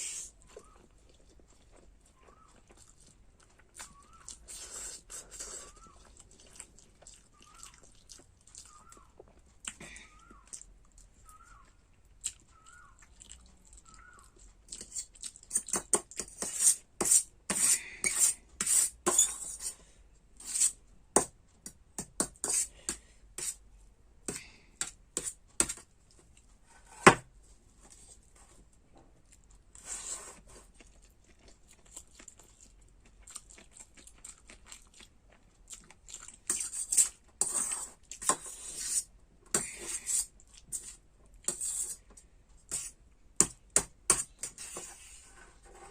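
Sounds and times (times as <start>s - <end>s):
slurping and chewing: 0.0s - 16.2s, 29.3s - 38.9s.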